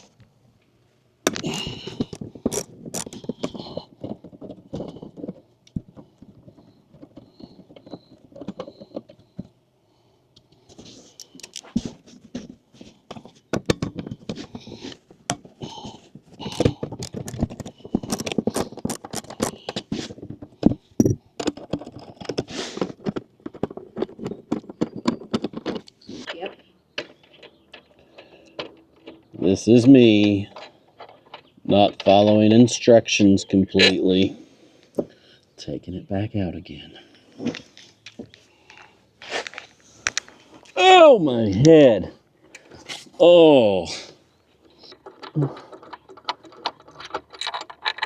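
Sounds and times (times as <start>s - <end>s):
parts clicking and knocking: 1.3s - 9.6s, 11.1s - 12.5s, 13.1s - 26.1s, 44.7s - 48.0s.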